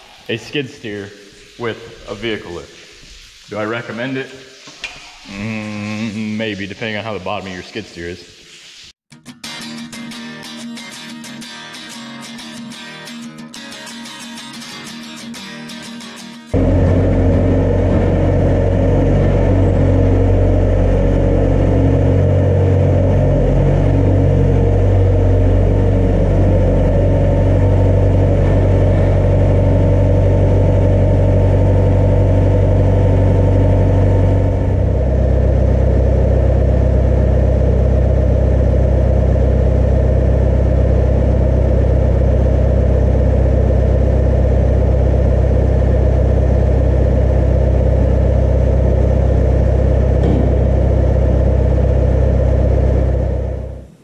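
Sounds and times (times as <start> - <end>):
motor humming: 16.6 - 54.0.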